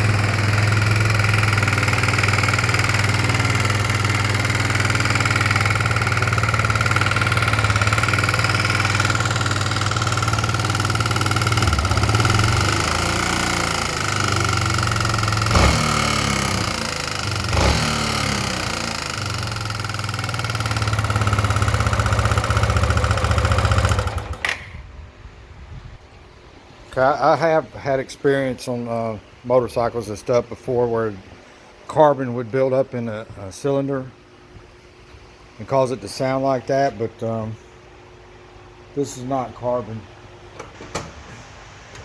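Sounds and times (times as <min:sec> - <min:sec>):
engine running with knock: 0:00.0 - 0:24.7
sharp engine bangs: 0:05.6 - 0:19.4.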